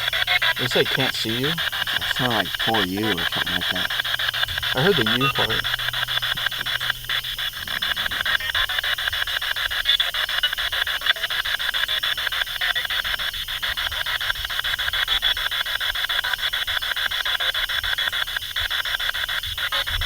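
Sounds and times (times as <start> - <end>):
chopped radio static: 0.0 - 9.4.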